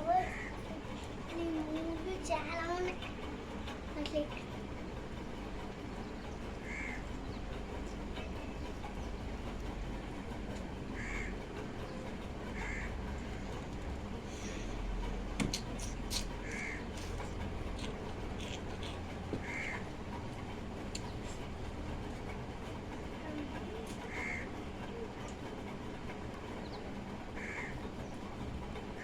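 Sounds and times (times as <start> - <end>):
crow cawing: 0.2 - 0.6, 6.6 - 7.0, 11.0 - 11.3, 12.6 - 13.0, 16.4 - 16.9, 19.4 - 19.8, 24.1 - 24.5, 27.4 - 27.8.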